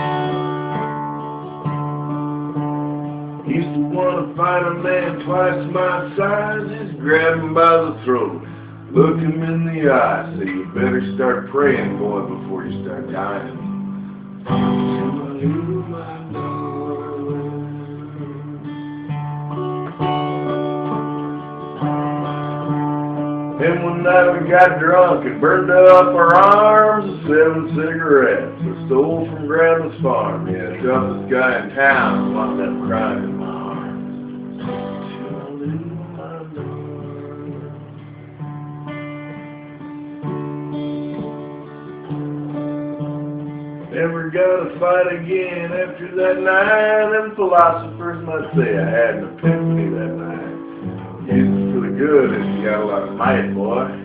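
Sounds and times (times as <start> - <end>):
acoustic guitar strumming chords: 0.0 - 54.0
person singing: 3.4 - 13.7, 14.5 - 19.2, 23.6 - 38.1, 43.9 - 54.0.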